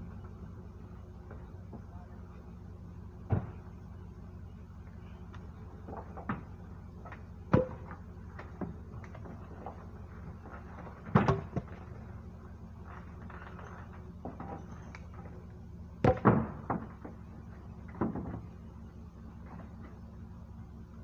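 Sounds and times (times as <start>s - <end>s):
steady low hum: 0.0s - 21.0s
logs thudding on ground: 3.2s - 3.7s, 5.4s - 12.2s, 12.8s - 15.4s, 16.0s - 18.6s.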